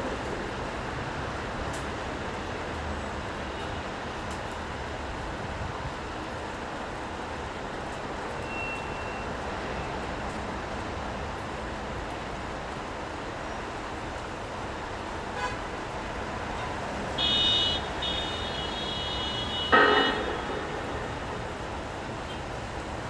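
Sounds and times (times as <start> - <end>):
city traffic: 0.0 - 23.0
rain: 0.0 - 23.0
car horn honking: 17.2 - 21.6.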